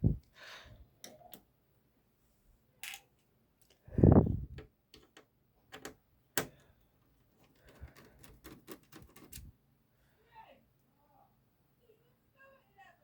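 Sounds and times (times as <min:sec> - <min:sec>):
screwdriver and screws clicking: 0:07.4 - 0:09.5.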